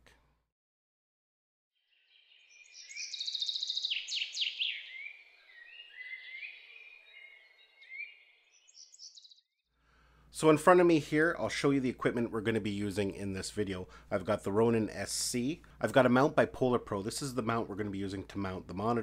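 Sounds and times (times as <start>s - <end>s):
songbirds singing: 1.8s - 9.6s.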